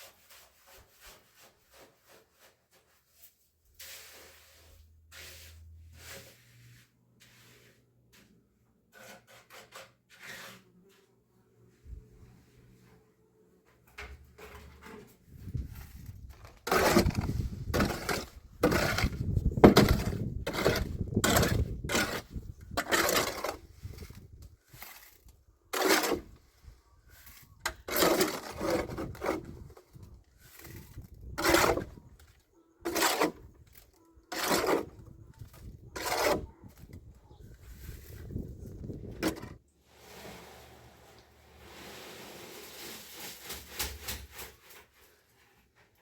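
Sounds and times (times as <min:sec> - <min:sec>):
hand tool scraping gritty material: 0:00.0 - 0:11.1, 0:14.4 - 0:46.0.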